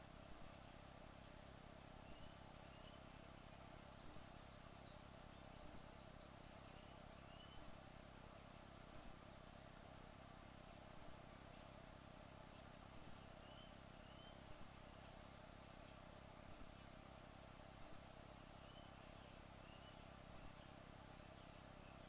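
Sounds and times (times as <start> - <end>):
faint high-pitched chirping trills: 0.0 - 7.8, 12.4 - 17.0, 18.0 - 22.0
steady low hiss: 0.0 - 22.0.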